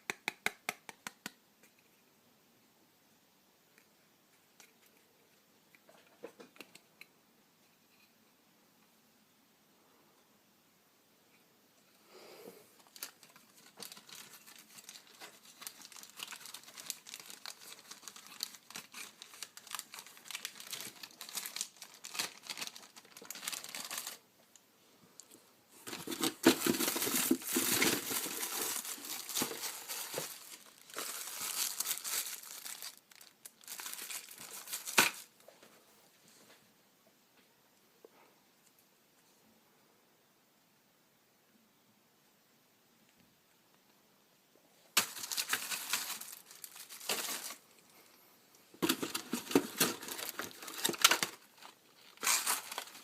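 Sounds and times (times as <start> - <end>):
plastic packaging crinkling: 12.8 - 24.2, 25.8 - 35.3, 45.0 - 47.9, 48.7 - 53.0.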